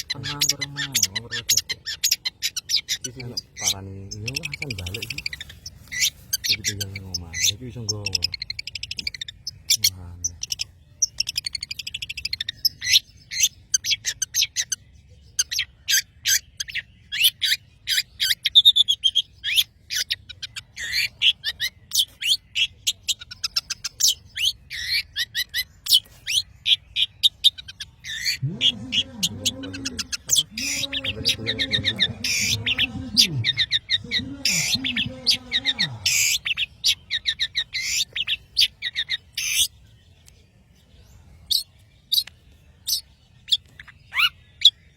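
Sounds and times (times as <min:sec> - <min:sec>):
bird singing chattering notes: 0:00.0 - 0:44.9.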